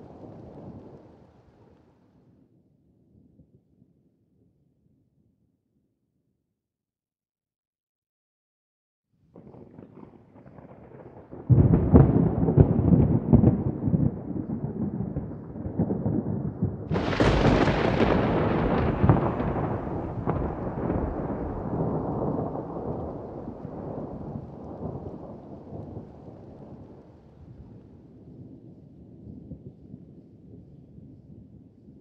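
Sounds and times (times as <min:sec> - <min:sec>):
thunder rumbling and cracking: 0:00.0 - 0:01.7, 0:09.4 - 0:29.8.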